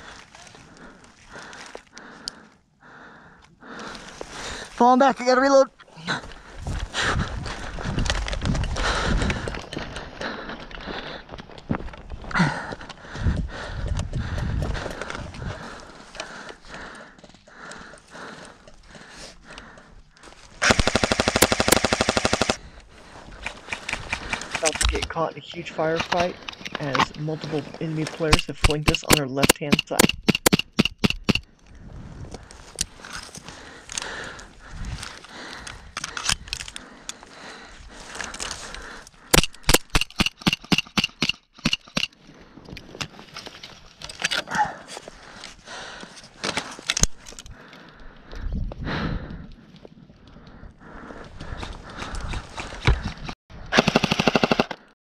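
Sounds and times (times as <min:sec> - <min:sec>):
rustling of movement: 0:05.8 - 0:28.6, 0:31.4 - 0:39.3
airsoft gun automatic burst: 0:20.6 - 0:22.6, 0:53.7 - 0:54.8.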